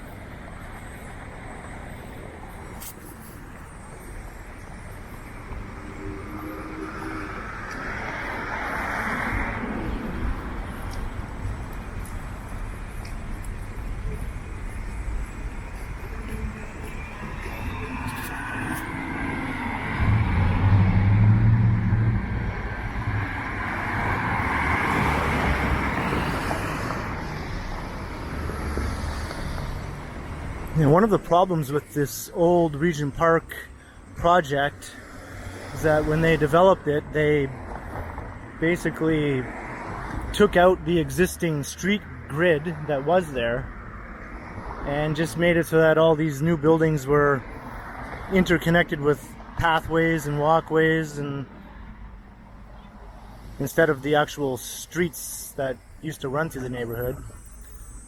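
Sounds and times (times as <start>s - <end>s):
road noise: 0.0s - 58.0s
vehicle driving past: 17.2s - 27.1s.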